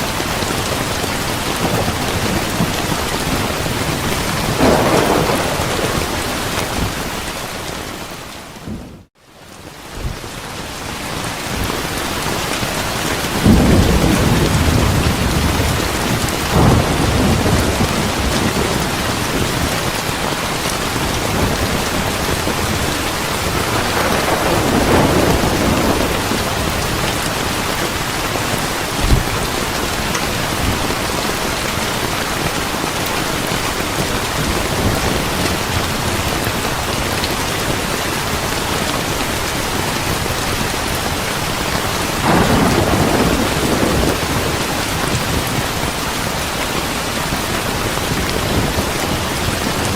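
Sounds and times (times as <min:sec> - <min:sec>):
heavy rain: 0:00.0 - 0:49.9
rolling thunder: 0:00.6 - 0:07.3, 0:13.3 - 0:20.1, 0:20.9 - 0:28.2, 0:42.2 - 0:45.8.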